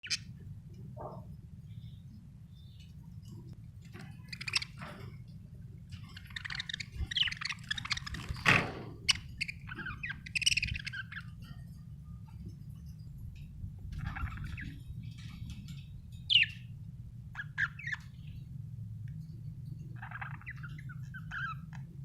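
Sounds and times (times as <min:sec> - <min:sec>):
budgerigars chirping and chattering: 0:00.0 - 0:00.3, 0:03.9 - 0:05.2, 0:05.9 - 0:12.9, 0:13.9 - 0:18.4, 0:19.5 - 0:21.9
steady low hum: 0:00.0 - 0:22.0.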